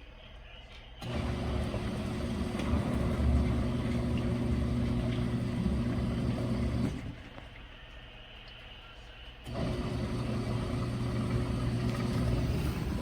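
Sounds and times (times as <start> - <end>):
washing machine motor humming: 1.0 - 7.4, 9.4 - 13.0.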